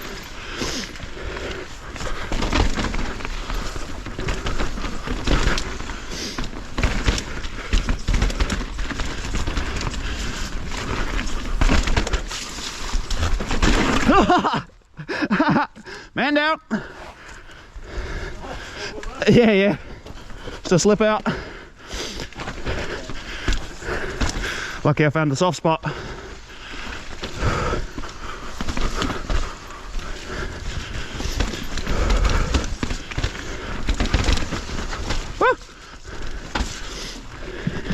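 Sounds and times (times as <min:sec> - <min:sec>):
mountain bike knocks and rattles: 0:00.0 - 0:14.6
bike rattling and knocking: 0:00.0 - 0:14.7, 0:17.3 - 0:24.8, 0:25.4 - 0:37.9
bike tyre noise on trail: 0:00.0 - 0:37.9.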